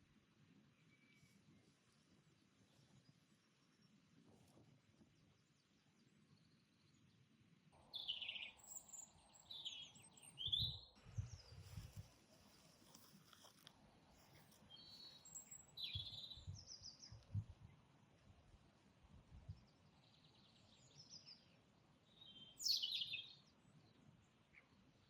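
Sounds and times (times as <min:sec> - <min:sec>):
songbirds singing: 0:05.0 - 0:12.8, 0:14.6 - 0:17.9, 0:19.4 - 0:25.0.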